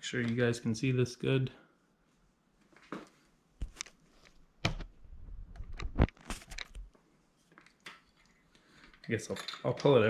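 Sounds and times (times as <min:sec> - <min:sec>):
metal tools clicking and knocking: 0:08.9 - 0:10.0.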